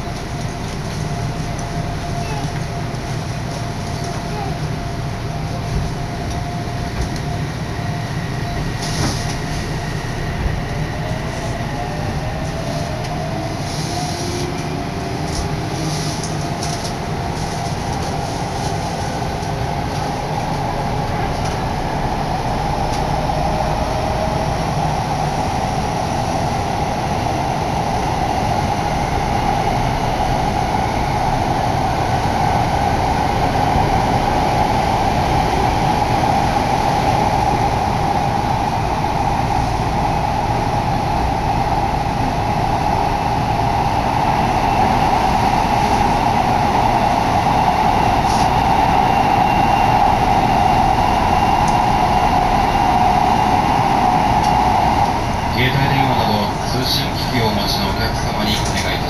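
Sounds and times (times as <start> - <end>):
train running noise: 0.0 - 59.0
train motor whine: 44.4 - 55.5.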